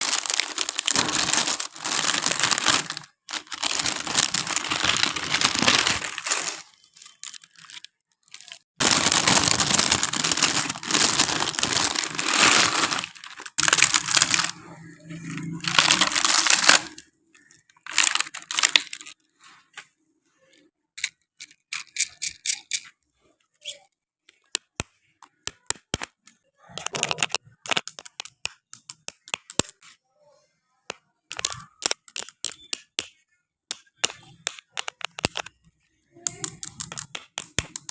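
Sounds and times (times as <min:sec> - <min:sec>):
packaging being torn and crinkled: 0:00.0 - 0:14.6, 0:15.6 - 0:19.2, 0:26.8 - 0:29.8, 0:31.3 - 0:33.0, 0:33.7 - 0:35.5, 0:36.3 - 0:37.9
sharp clicks and taps: 0:24.3 - 0:29.8, 0:30.9 - 0:35.5, 0:36.3 - 0:37.9.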